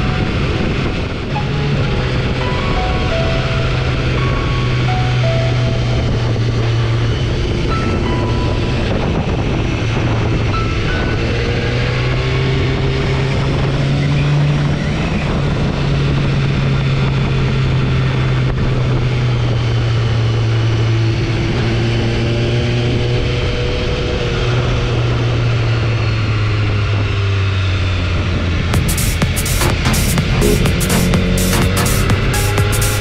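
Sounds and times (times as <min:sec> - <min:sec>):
wind and road noise: 0:00.0 - 0:33.0
motorcycle engine running: 0:28.8 - 0:33.0.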